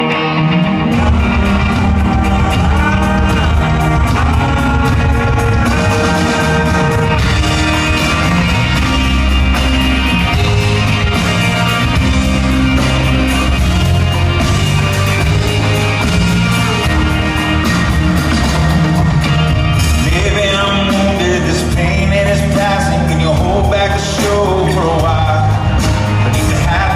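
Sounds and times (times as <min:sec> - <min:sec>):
live country-rock band: 0:00.0 - 0:26.9
person singing: 0:19.5 - 0:26.9.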